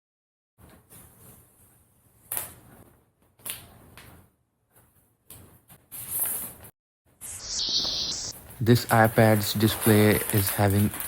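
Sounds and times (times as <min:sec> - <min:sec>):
packaging rustling: 0:08.7 - 0:11.0.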